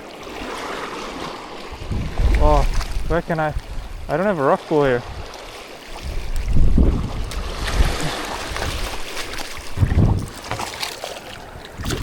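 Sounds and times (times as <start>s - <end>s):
water sloshing and splashing: 0.0s - 12.0s
wind buffeting microphone: 1.6s - 4.1s, 4.8s - 10.6s, 11.4s - 12.0s.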